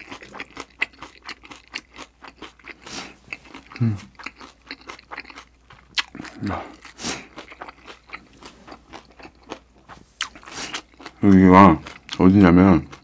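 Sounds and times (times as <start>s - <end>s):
wet crunchy chewing: 0.0s - 13.0s.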